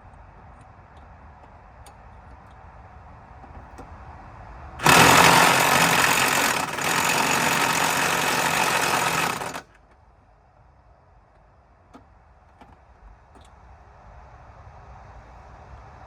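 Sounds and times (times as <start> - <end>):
impact wrench hammering: 4.8 - 9.7.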